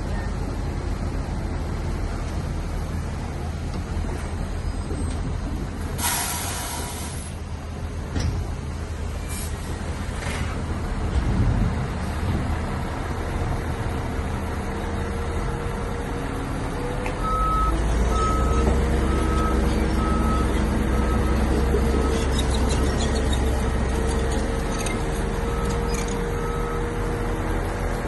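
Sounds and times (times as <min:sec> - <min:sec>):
diesel engine running: 0:00.0 - 0:28.0
reversing alarm beeps: 0:17.2 - 0:22.3, 0:25.5 - 0:26.9.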